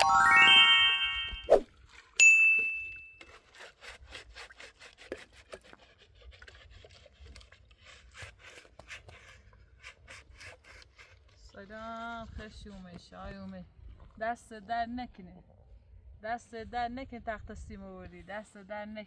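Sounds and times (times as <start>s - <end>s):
bright ding: 0.0s - 1.6s, 2.2s - 3.2s.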